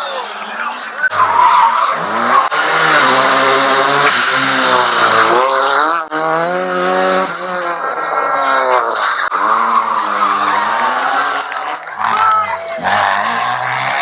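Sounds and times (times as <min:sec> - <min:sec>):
rally car engine at full throttle: 0:00.7 - 0:14.0.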